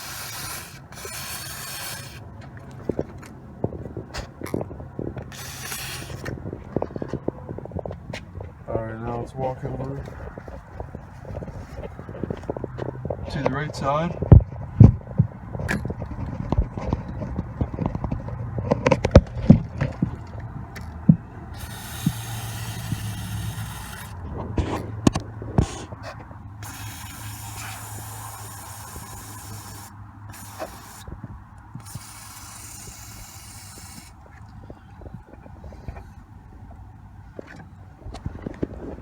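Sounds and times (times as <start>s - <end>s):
aerosol can hissing: 0.0s - 2.2s, 5.3s - 6.3s, 21.6s - 24.2s, 26.6s - 31.1s, 31.8s - 34.2s.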